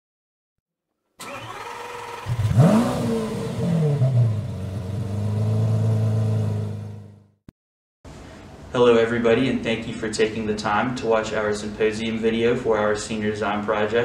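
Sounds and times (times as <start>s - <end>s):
car engine starting and idling: 1.2s - 7.2s.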